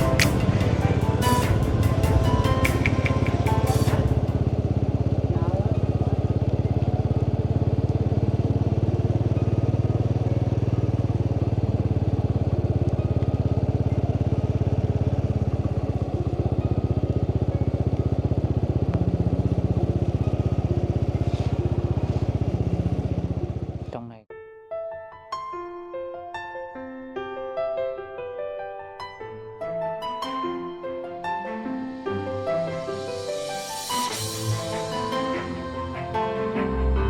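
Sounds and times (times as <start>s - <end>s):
motorbike engine running: 0.0s - 24.1s.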